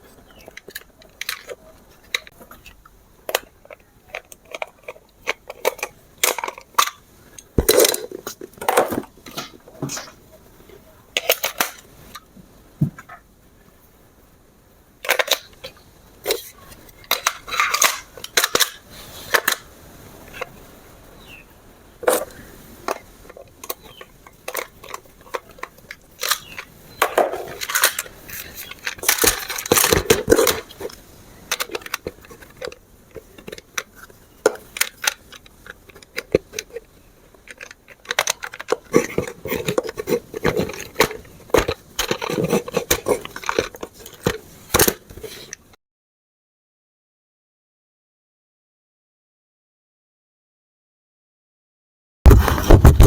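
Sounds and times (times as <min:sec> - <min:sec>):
plastic scraping: 0:00.0 - 0:12.2, 0:22.0 - 0:45.7, 0:52.3 - 0:53.0
plastic toy parts clicking: 0:00.3 - 0:10.2, 0:11.2 - 0:12.2, 0:15.0 - 0:19.7, 0:22.0 - 0:45.6
packaging rustling: 0:22.1 - 0:45.5.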